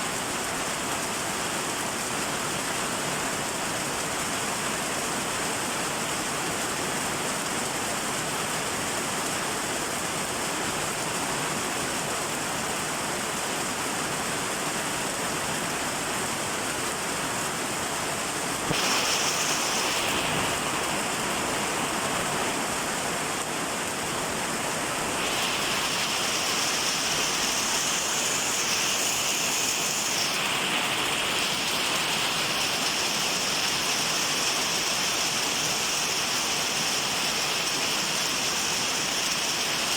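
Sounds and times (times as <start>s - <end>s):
steady rain falling: 0.0s - 39.9s
high-pitched hiss: 18.5s - 23.0s, 24.8s - 39.9s.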